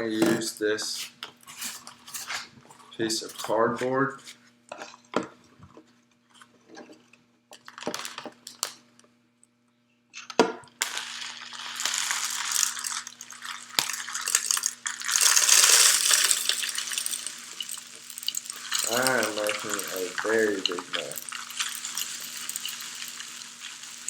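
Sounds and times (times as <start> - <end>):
seed rattling into plastic bottle: 7.6 - 8.8, 10.8 - 24.0.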